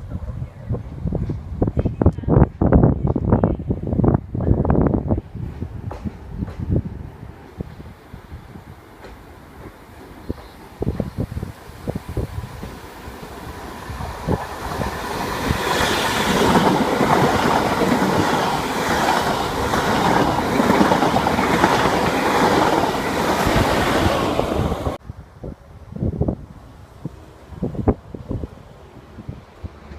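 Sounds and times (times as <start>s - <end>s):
wind buffeting microphone: 0.0s - 29.9s
train passing: 2.5s - 29.9s
train wheel clatter: 13.9s - 25.0s.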